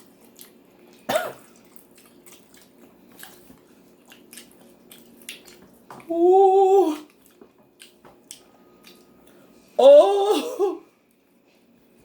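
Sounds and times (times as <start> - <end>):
chewing with wet mouth clicks: 0.0 - 6.1, 7.1 - 9.4.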